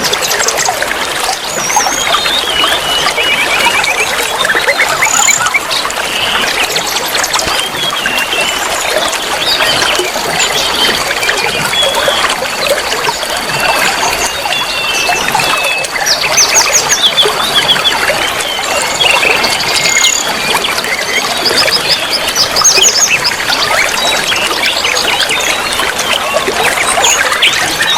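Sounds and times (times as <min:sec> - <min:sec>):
songbirds chirping and trilling: 0:00.0 - 0:27.9.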